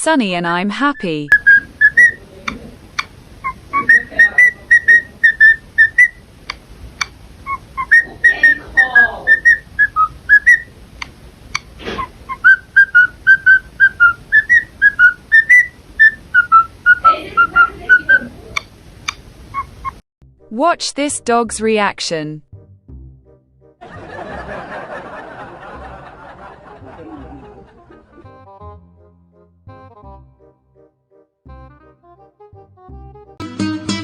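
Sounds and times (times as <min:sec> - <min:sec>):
person whistling a tune: 0:03.5 - 0:06.2, 0:07.8 - 0:10.6, 0:12.3 - 0:18.2.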